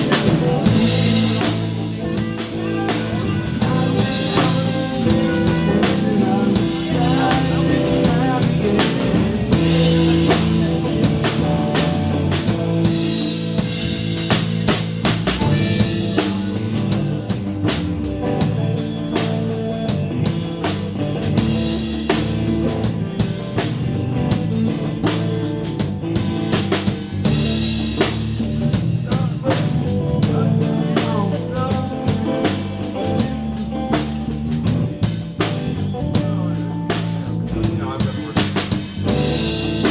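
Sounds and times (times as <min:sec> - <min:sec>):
bass guitar: 0:00.0 - 0:39.9
drum kit beat: 0:00.0 - 0:39.9
electric guitar: 0:00.0 - 0:39.9.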